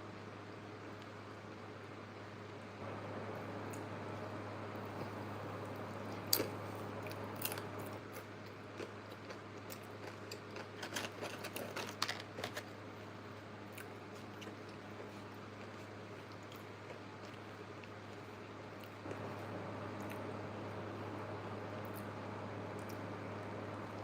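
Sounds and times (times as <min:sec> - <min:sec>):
steady low hum: 0:00.0 - 0:24.0
person eating crunchy food: 0:05.8 - 0:19.4.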